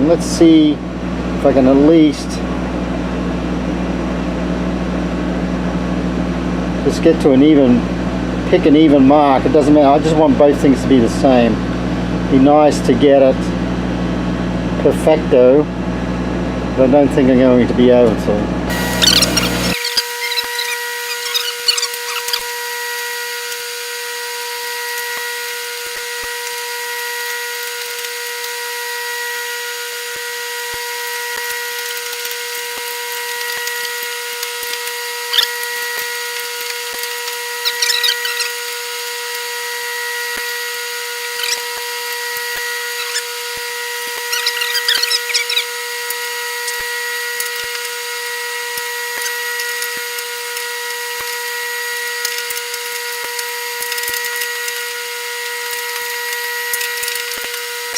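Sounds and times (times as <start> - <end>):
steady machine whine: 0.0 - 57.9.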